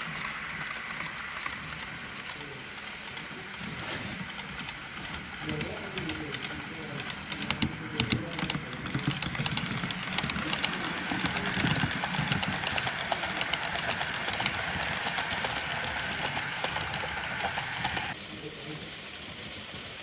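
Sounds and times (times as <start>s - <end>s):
model locomotive humming: 0.0s - 20.0s
wheels clicking on track: 0.0s - 20.0s.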